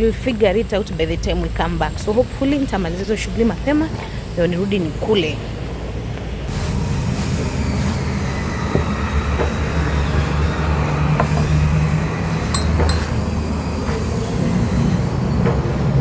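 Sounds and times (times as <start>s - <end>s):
vehicle engine rumbling: 0.0s - 16.0s
metallic clinks: 12.5s - 13.0s.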